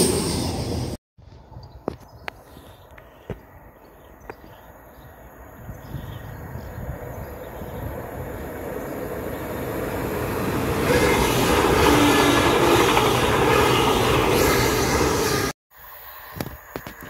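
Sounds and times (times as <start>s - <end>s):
passenger train passing at speed: 0.0s - 1.0s, 5.2s - 16.1s.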